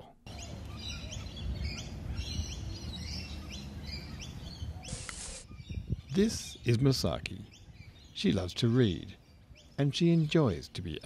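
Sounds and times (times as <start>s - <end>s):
birds chirping: 0.0s - 11.0s
burst of hiss: 4.9s - 5.5s.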